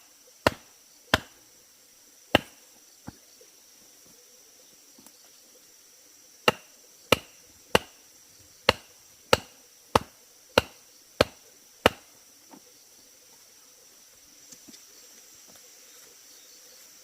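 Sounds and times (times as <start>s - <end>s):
insects buzzing: 0.0s - 17.0s
blade chopping bamboo: 0.4s - 1.4s, 2.3s - 2.6s, 6.5s - 8.0s, 8.6s - 12.1s.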